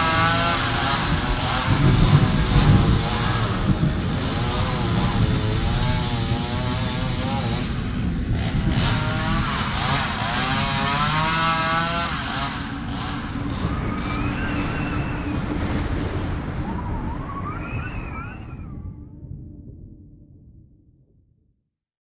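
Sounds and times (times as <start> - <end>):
engine-like rumble: 0.0 - 20.1
wailing cries: 13.3 - 15.8.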